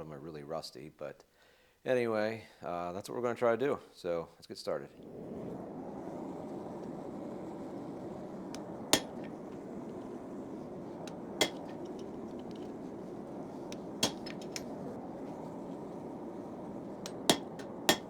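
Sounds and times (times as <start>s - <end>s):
low rushing noise: 4.8s - 18.0s
hammer blows on steel: 8.9s - 9.3s, 11.1s - 11.9s, 13.7s - 14.7s, 17.0s - 18.0s.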